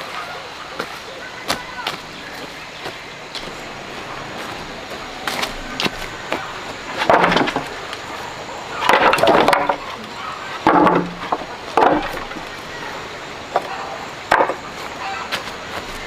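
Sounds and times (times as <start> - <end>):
boards scraping: 3.4 - 16.0
wooden knocks: 7.0 - 7.7, 8.8 - 9.8, 10.6 - 12.4, 14.3 - 14.6.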